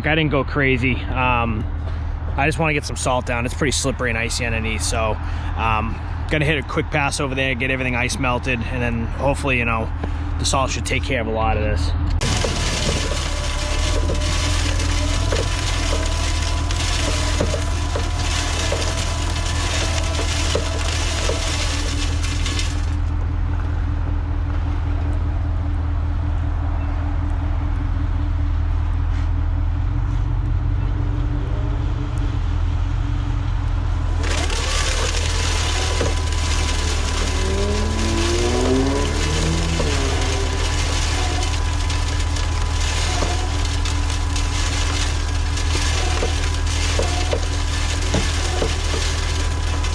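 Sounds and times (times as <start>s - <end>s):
truck engine deep hum: 0.0s - 49.9s
wavering whine: 31.5s - 49.9s.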